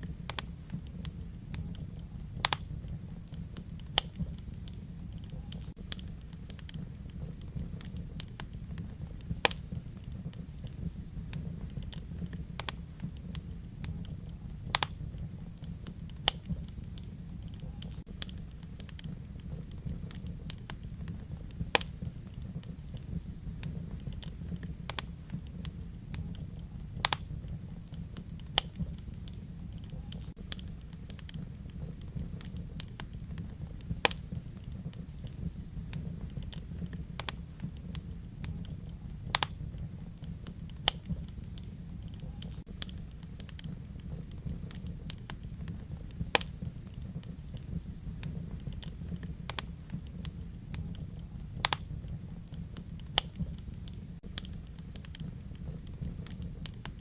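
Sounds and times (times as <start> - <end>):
fire crackling and popping: 0.0 - 57.0
fire rumbling: 0.0 - 57.0.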